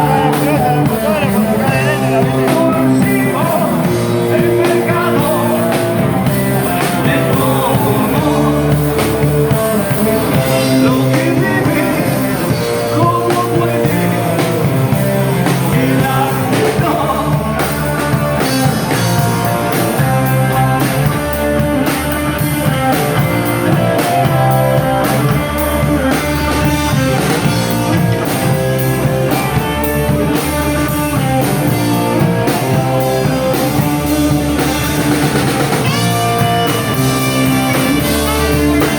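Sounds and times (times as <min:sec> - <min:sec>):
person singing: 0:00.0 - 0:20.8
drums: 0:00.0 - 0:38.9
electric guitar: 0:00.0 - 0:38.9.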